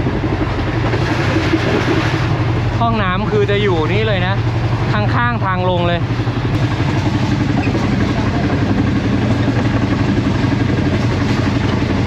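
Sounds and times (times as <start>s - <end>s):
train wheels rumbling on rails: 6.0s - 12.0s.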